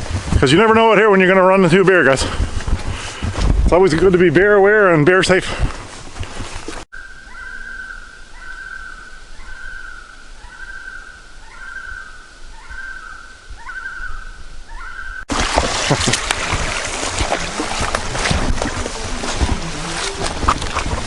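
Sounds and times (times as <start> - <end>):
bird whistling song: 7.0 - 15.2.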